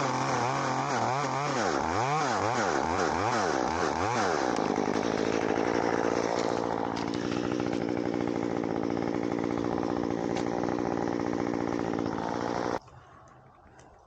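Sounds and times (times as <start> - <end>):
chainsaw engine running: 0.0 - 12.8.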